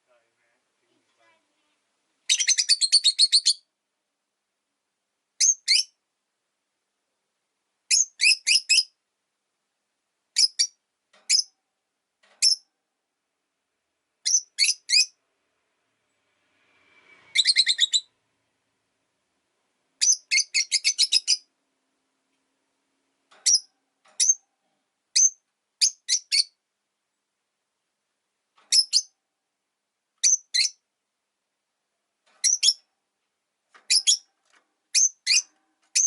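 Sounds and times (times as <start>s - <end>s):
lovebird chirping: 2.2s - 3.7s, 5.4s - 6.0s, 7.9s - 9.0s, 10.3s - 11.6s, 12.4s - 12.7s, 14.2s - 15.2s, 17.2s - 18.2s, 20.0s - 21.5s, 23.4s - 24.4s, 25.1s - 26.6s, 28.7s - 29.2s, 30.2s - 30.9s, 32.4s - 32.9s, 33.8s - 34.3s, 34.9s - 36.0s.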